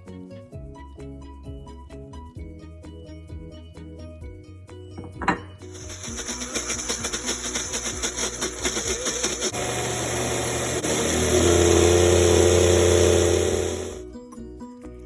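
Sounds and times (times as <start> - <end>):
small electric motor running: 5.7 - 14.0.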